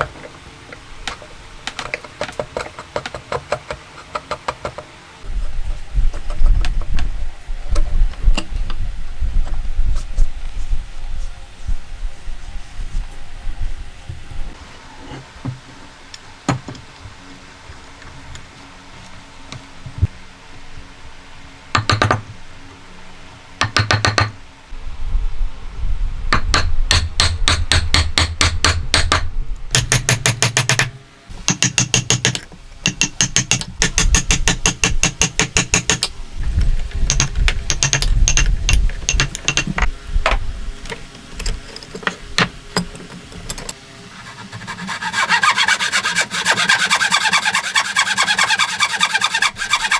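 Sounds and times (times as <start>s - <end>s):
hammer striking wood: 21.8s - 22.2s, 23.6s - 24.3s, 26.4s - 36.1s
hand saw cutting wood: 44.1s - 49.9s.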